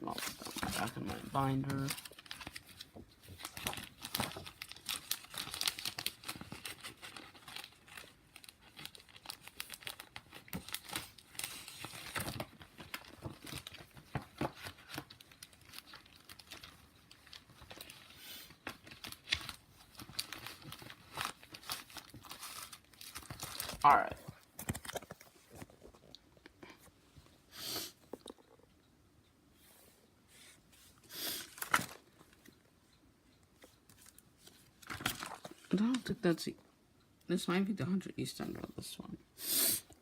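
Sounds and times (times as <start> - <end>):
paper crinkling and rustling: 0.0 - 26.1, 31.4 - 32.6, 33.6 - 36.2.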